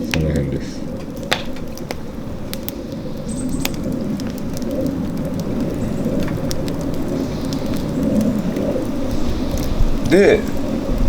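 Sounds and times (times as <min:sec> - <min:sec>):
burning logs crackling: 0:00.0 - 0:11.0
fire low rumble: 0:00.0 - 0:11.0.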